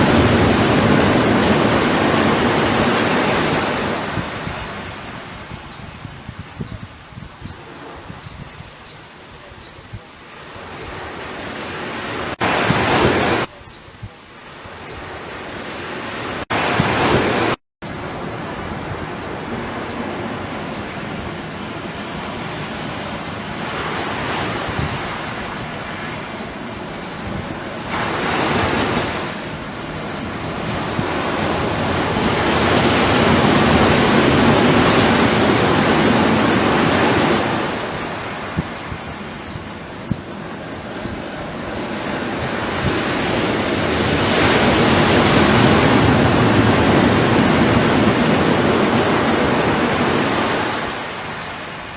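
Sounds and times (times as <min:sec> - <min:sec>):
ocean waves washing in: 0:00.0 - 0:51.9.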